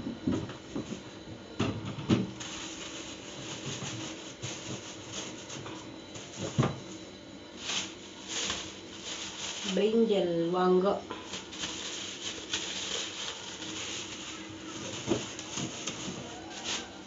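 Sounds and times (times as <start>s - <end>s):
plastic bags crinkling: 2.3s - 6.6s, 7.6s - 17.0s.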